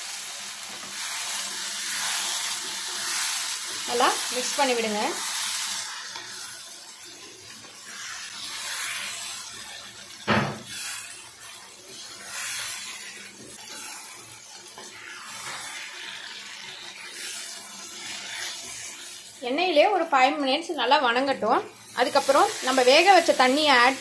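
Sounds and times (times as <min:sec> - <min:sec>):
liver sizzling in a pan: 0:00.0 - 0:24.0
spatula stirring: 0:00.7 - 0:19.4.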